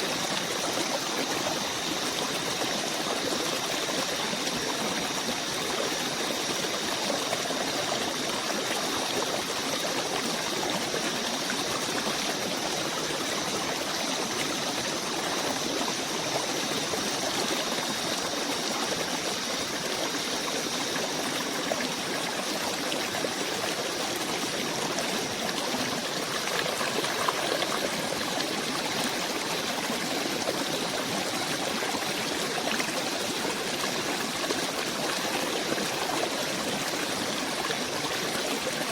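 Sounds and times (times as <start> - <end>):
stream rushing: 25.2 - 30.5.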